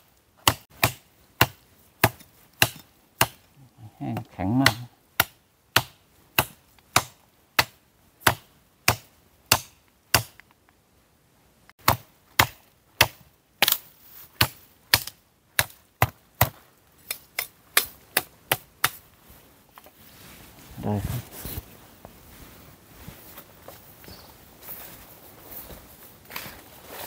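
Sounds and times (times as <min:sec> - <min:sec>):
axe chopping dry wood: 0:00.4 - 0:03.5, 0:04.1 - 0:10.4, 0:11.8 - 0:13.8, 0:14.4 - 0:19.0.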